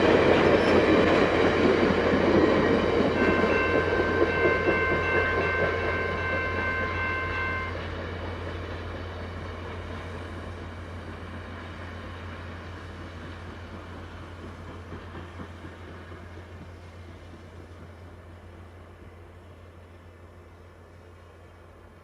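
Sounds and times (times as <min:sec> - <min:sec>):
train running: 0:00.0 - 0:22.0
train horn chord: 0:03.2 - 0:07.8.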